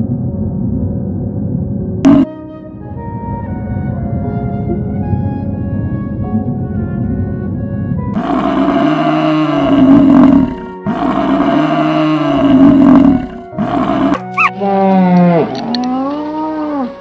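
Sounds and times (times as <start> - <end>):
background music: 0.0 - 17.0
buffalo bellowing: 8.2 - 17.0
lowing call: 8.2 - 17.0.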